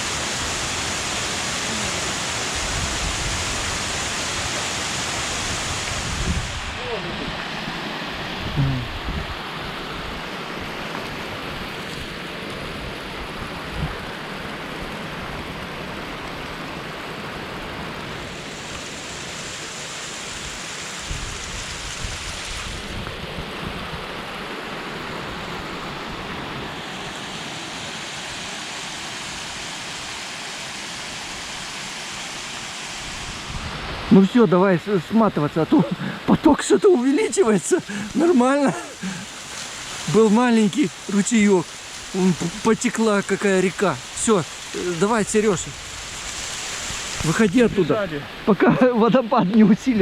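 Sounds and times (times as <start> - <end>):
waterfall pouring: 35.3 - 49.4.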